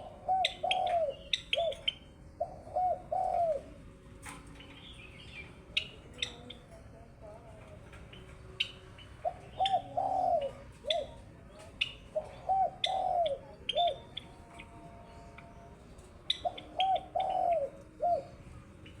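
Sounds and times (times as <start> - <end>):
bird cooing: 0.0 - 19.0
sparrow chirping with clicking notes: 0.4 - 2.1, 16.2 - 17.4.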